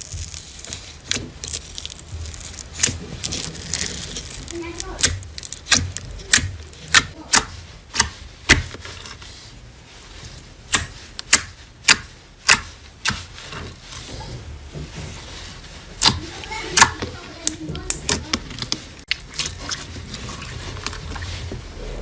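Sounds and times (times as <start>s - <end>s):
knife cutting dry soap: 0.0s - 9.6s, 10.2s - 14.4s.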